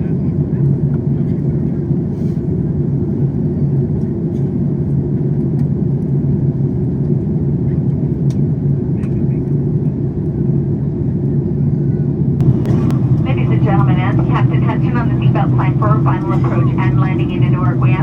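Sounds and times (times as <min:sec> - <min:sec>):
airliner cabin engine rumble: 0:12.4 - 0:18.0
low hum: 0:12.4 - 0:18.0.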